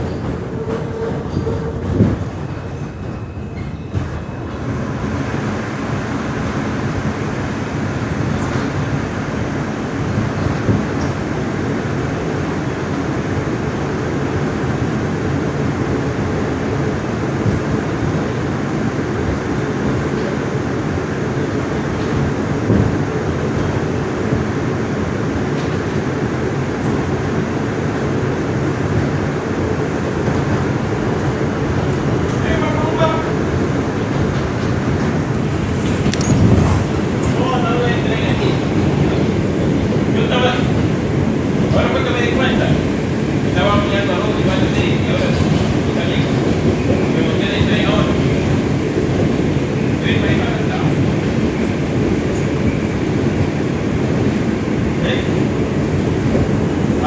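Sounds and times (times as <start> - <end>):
wheels rumbling on rail: 0.0 - 57.0.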